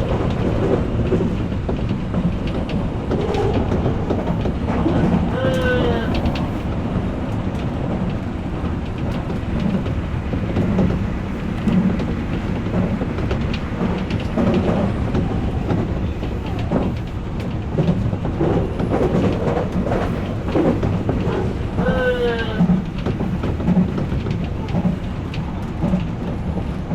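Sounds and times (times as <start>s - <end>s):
train wheels rumbling on rails: 0.0s - 26.9s.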